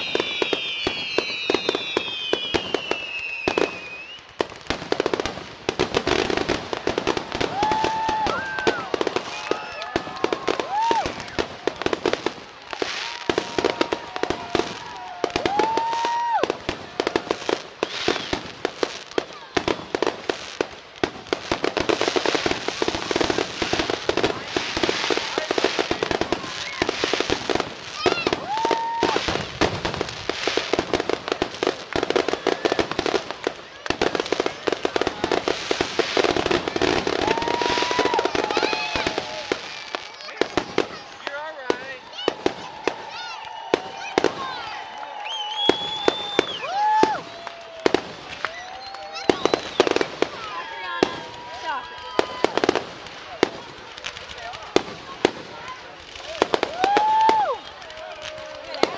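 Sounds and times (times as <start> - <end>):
high firework whistles: 0.0 - 11.6, 17.2 - 19.0, 21.3 - 31.2, 35.4 - 51.7
fireworks bangs and crackling: 0.0 - 58.9.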